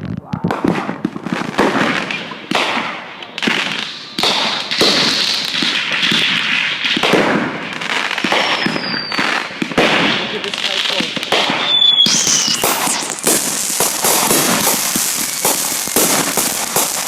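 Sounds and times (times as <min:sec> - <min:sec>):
fireworks bangs and crackling: 0:00.0 - 0:17.0
firework falling whistle: 0:08.2 - 0:09.5, 0:11.4 - 0:16.9.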